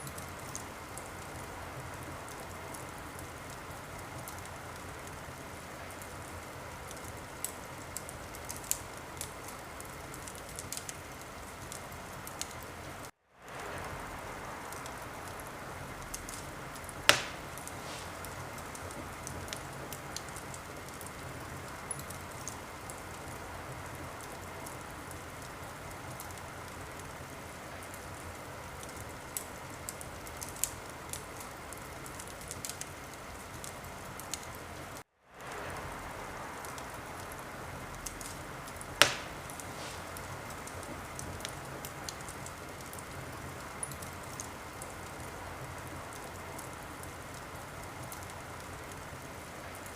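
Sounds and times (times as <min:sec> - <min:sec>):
wood fire crackling: 0:00.0 - 0:49.9
sharp loud pop: 0:17.1 - 0:18.2, 0:39.0 - 0:40.0.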